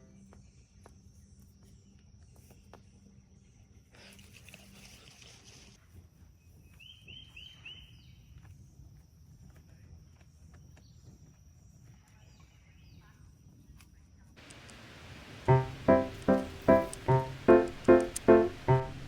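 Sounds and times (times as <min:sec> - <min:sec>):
bird chirping: 0:14.4 - 0:19.0
low background rumble: 0:14.5 - 0:19.0.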